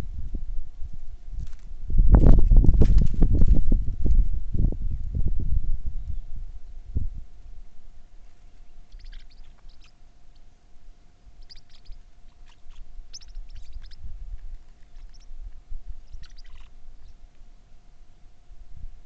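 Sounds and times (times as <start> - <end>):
faint steady hum: 0.0 - 19.0
small birds chirping: 8.2 - 17.5.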